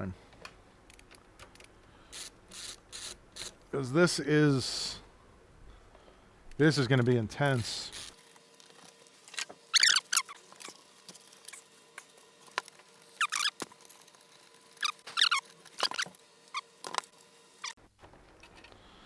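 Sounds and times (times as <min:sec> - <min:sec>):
high downward-sliding squeaks: 0:09.8 - 0:10.8, 0:13.2 - 0:13.6, 0:14.8 - 0:17.0.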